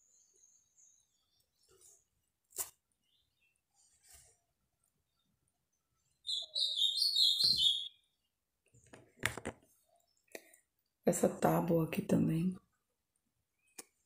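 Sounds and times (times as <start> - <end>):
bird chirping: 0.0 - 1.8, 3.0 - 3.7, 5.0 - 8.4.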